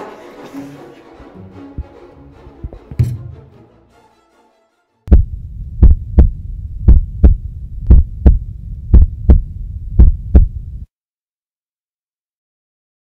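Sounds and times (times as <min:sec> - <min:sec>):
heartbeat thumps: 0:05.1 - 0:10.9
steady low hum: 0:05.1 - 0:10.9.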